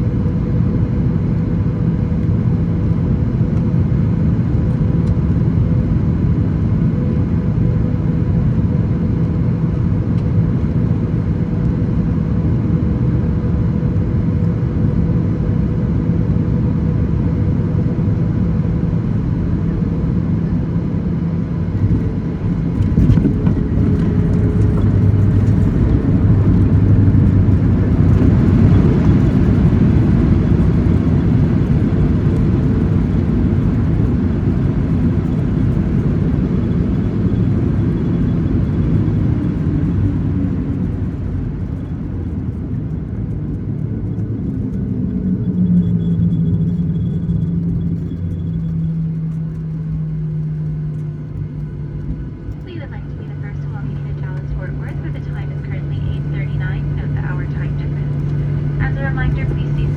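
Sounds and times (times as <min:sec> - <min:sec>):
airliner engine rumble: 0:00.0 - 0:59.9
faint steady hum: 0:16.3 - 0:59.9.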